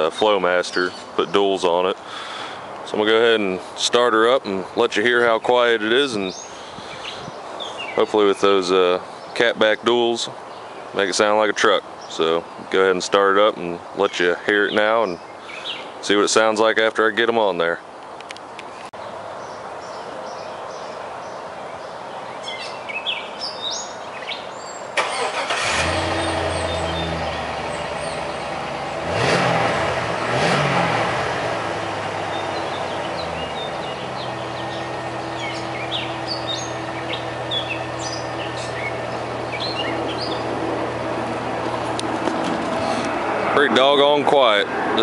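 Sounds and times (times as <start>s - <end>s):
birds chirping: 0.0s - 45.0s
truck engine starting and revving: 25.0s - 45.0s.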